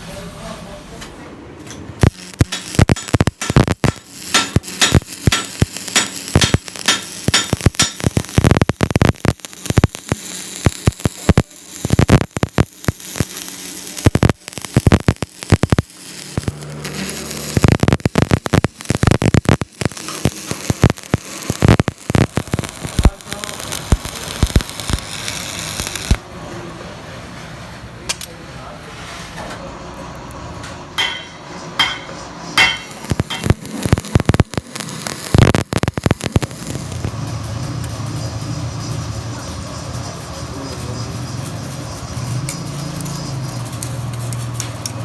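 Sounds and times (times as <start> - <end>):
machine humming: 2.0 - 26.9, 31.8 - 44.2.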